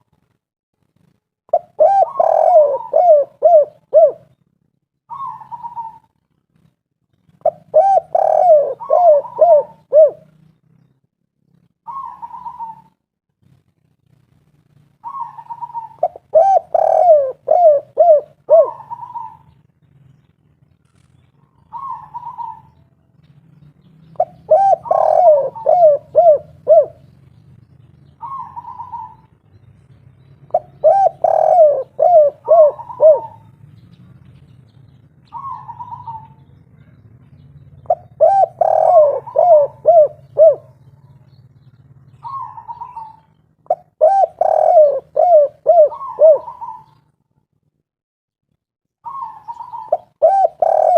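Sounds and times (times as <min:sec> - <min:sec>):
dove cooing: 0:01.5 - 0:04.4, 0:05.1 - 0:06.2, 0:07.3 - 0:10.4, 0:11.8 - 0:13.0, 0:15.0 - 0:19.6, 0:21.0 - 0:22.9, 0:24.1 - 0:27.2, 0:27.8 - 0:29.4, 0:30.5 - 0:33.6, 0:35.2 - 0:41.4, 0:42.0 - 0:47.2, 0:49.0 - 0:50.9.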